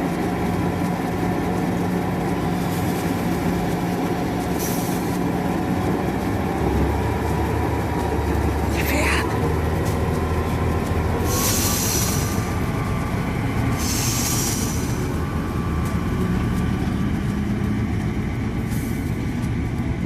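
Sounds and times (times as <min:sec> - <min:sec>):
steam locomotive rumble: 0:00.0 - 0:20.0
high steam hiss: 0:11.3 - 0:12.6, 0:13.7 - 0:15.2.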